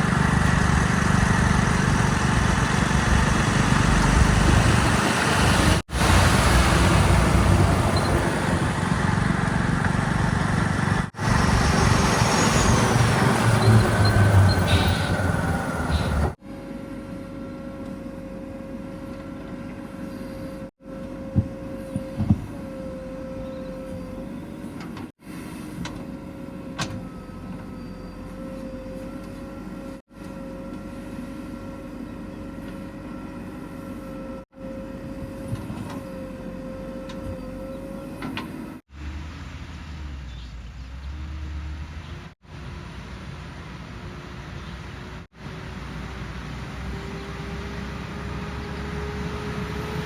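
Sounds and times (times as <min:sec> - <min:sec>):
heavy diesel engine running: 0:00.0 - 0:16.4.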